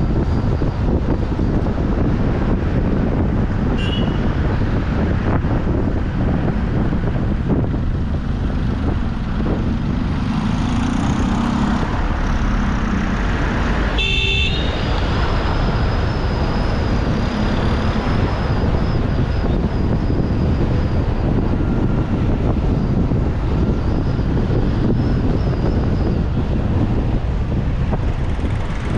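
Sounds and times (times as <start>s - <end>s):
car road and wind noise: 0.0s - 28.9s
car horn honk: 3.8s - 4.2s, 14.0s - 14.9s.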